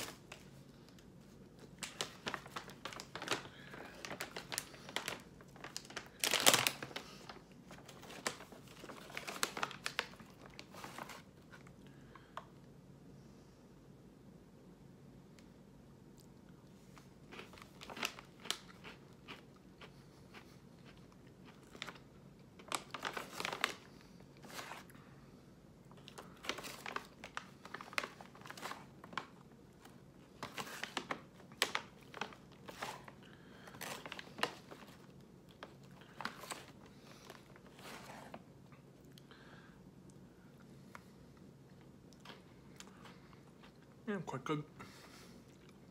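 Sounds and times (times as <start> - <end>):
chewing and crunching snack: 16.1 - 39.4, 40.0 - 44.0, 45.3 - 45.9.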